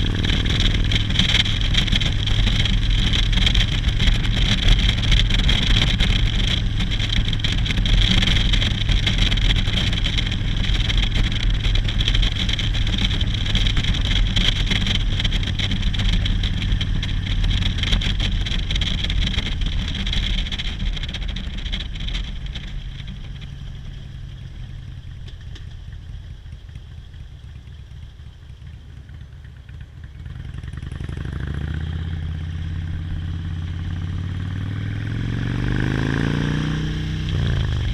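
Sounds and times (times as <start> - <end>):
wind noise: 0.0 - 23.3
motorcycle engine drone: 0.0 - 37.9.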